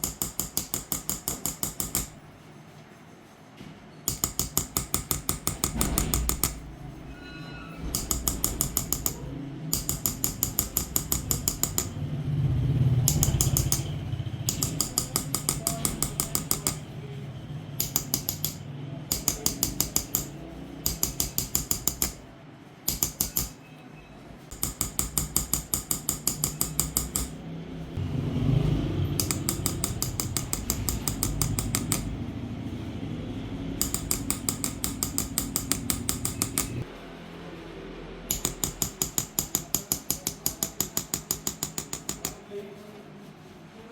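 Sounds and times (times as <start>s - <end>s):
small hammer tapping on chisel: 0.0s - 2.2s, 4.1s - 6.7s, 7.8s - 12.0s, 13.0s - 16.8s, 17.8s - 22.2s, 22.9s - 23.6s, 24.5s - 27.4s, 29.2s - 32.2s, 33.8s - 36.9s, 38.3s - 42.4s.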